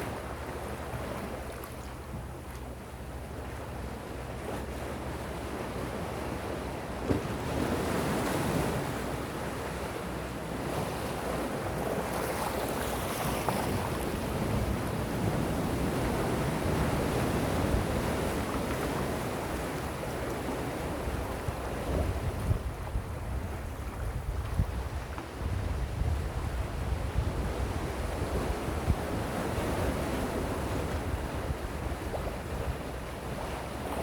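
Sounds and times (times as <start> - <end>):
sea waves washing ashore: 0.0 - 34.0
wind rumbling on microphone: 11.0 - 34.0.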